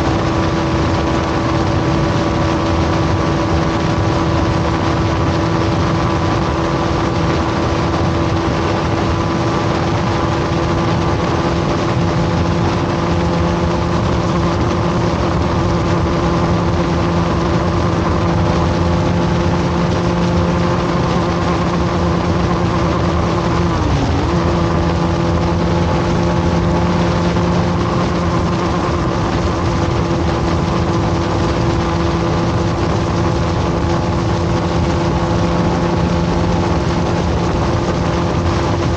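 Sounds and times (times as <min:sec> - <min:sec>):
motorcycle engine at high speed: 0:00.0 - 0:38.9
rushing wind noise: 0:00.0 - 0:38.9.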